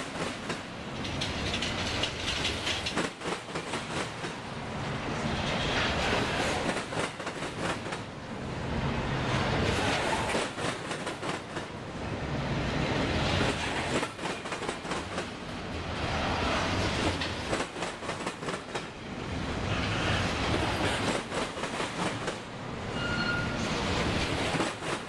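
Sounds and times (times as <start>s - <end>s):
wheels clacking over rail joints: 0.0s - 4.6s, 5.2s - 8.1s, 9.6s - 11.8s, 13.2s - 15.5s, 16.4s - 19.0s, 20.5s - 22.5s, 23.9s - 25.0s
freight train rumbling past: 0.0s - 25.0s.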